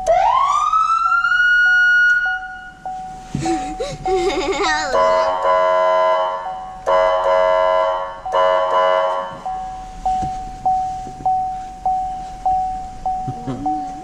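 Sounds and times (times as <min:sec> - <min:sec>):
pulsing electronic warning tone: 0:00.0 - 0:03.3
fire truck horn blasts: 0:04.9 - 0:09.5.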